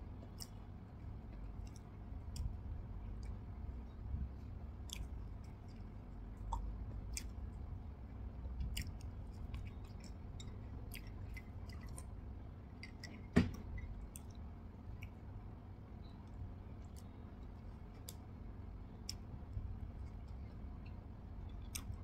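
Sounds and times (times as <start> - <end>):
chewing soft cake: 0.0 - 22.0
sticky mouth clicks: 21.6 - 22.0.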